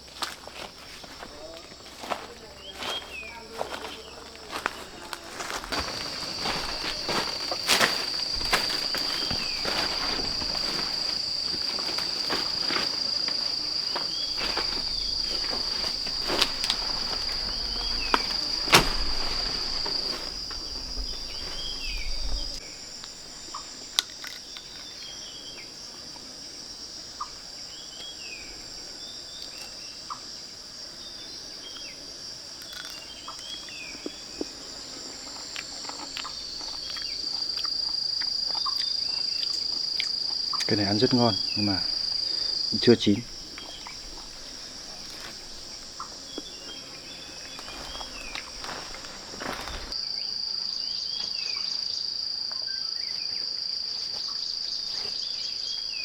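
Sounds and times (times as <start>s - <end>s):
footsteps: 0.0s - 22.6s, 40.7s - 50.0s
rustling in vegetation: 0.0s - 25.2s, 31.8s - 50.2s, 53.0s - 56.0s
insects droning: 0.0s - 56.0s
sharp knocks: 14.3s - 20.7s.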